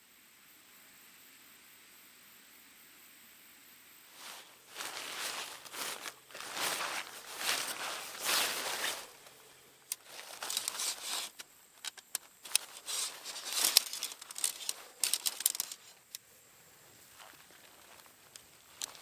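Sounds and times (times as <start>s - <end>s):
crinkling and rustling: 4.2s - 16.2s, 17.0s - 19.0s.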